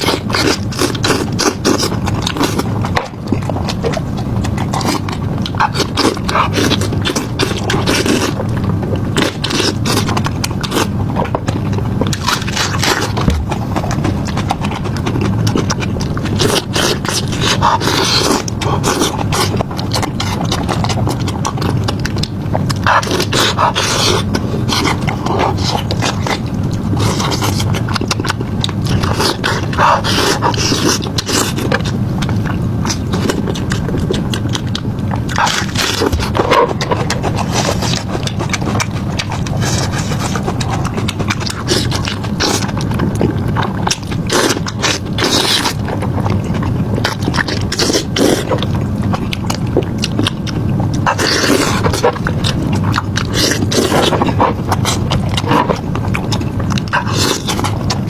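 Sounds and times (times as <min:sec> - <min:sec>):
chewing with crunches: 0:00.0 - 0:58.0.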